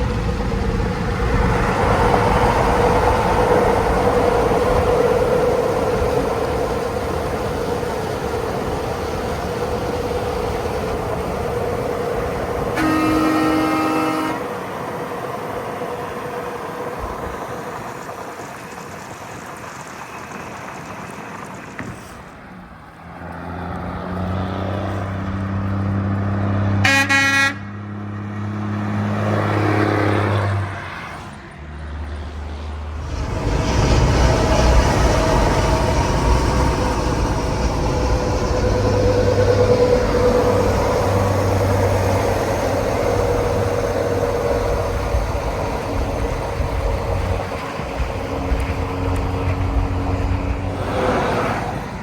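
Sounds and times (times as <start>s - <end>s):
heavy engine droning: 0.0s - 52.0s
road traffic: 0.0s - 52.0s
vehicle horn blasts: 12.8s - 14.6s, 26.8s - 27.7s.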